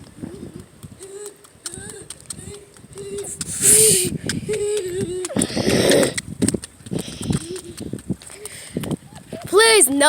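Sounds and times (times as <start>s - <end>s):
child's voice: 9.4s - 10.0s.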